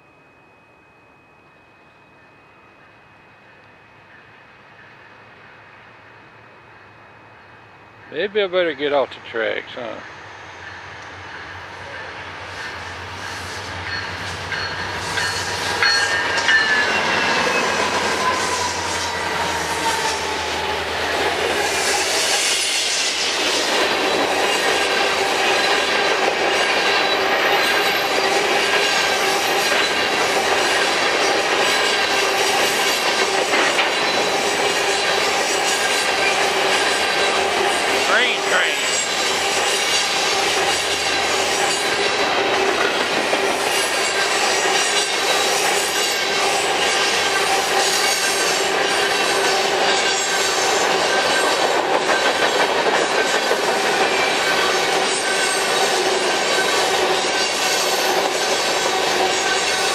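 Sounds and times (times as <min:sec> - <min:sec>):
diesel locomotive engine hum: 0:00.0 - 0:59.9
steel wheel squeal: 0:11.9 - 0:59.9
wheel clatter on rails: 0:23.4 - 0:38.0, 0:38.9 - 0:59.9.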